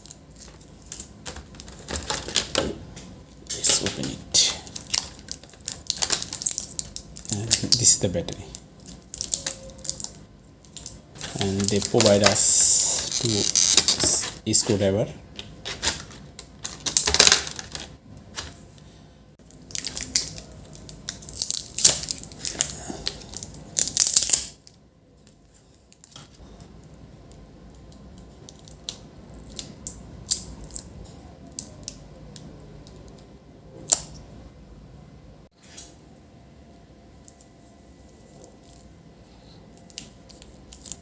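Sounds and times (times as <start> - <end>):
packaging rustling and tearing: 3.5 - 14.7, 15.6 - 18.5, 19.4 - 24.8.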